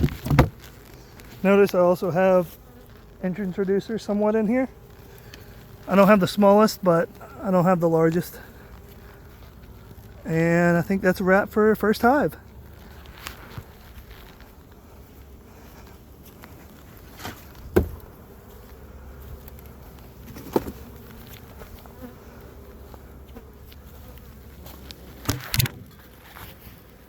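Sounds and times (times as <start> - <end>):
sharp knocks: 0.0 - 0.6, 17.7 - 18.1
bees buzzing: 0.0 - 27.0.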